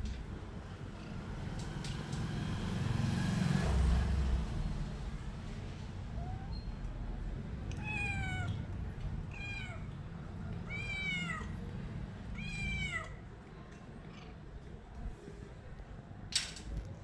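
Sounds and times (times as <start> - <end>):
cat meowing: 6.2 - 6.6, 7.6 - 11.6, 12.3 - 13.3.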